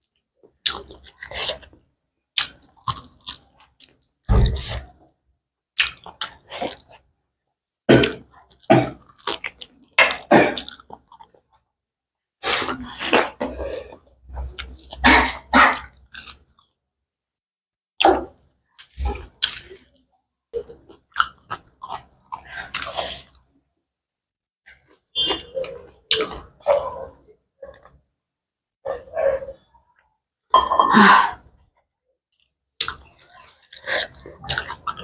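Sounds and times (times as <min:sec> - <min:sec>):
wet mouth chewing sounds: 0:00.6 - 0:01.8, 0:20.6 - 0:23.4, 0:32.4 - 0:35.0.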